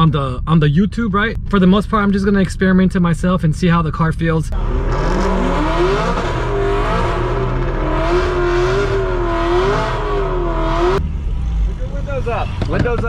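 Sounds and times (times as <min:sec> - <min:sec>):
car engine revving: 0:04.5 - 0:13.0.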